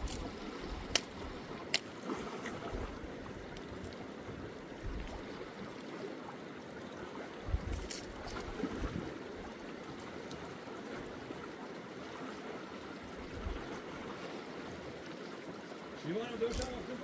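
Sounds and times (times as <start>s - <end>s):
flowing river rushing: 0.0s - 17.0s
soft low thumps: 4.8s - 5.2s.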